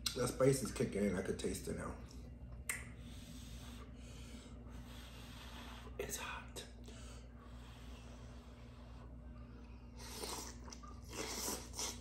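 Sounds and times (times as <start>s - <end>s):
steady low hum: 0.0s - 12.0s
person chewing food: 10.0s - 12.0s.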